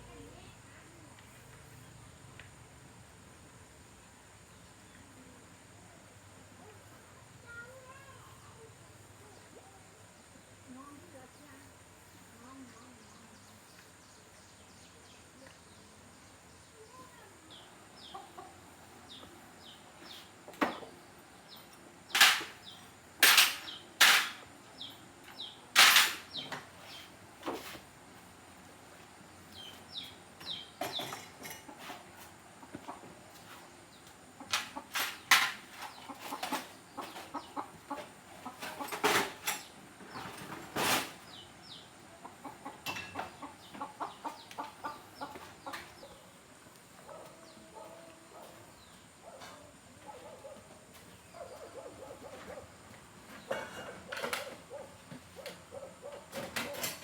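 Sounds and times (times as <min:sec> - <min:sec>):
chickens clucking: 0:17.9 - 0:20.9, 0:29.6 - 0:46.4, 0:47.0 - 0:57.0.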